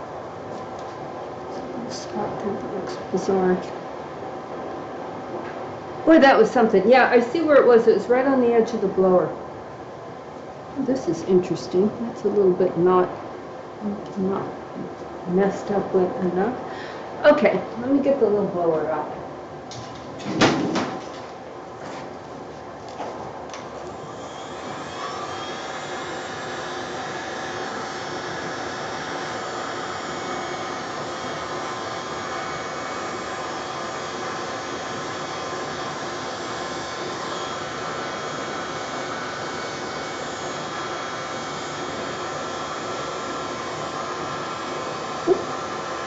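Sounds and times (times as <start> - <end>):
hair dryer blowing: 23.8 - 46.0.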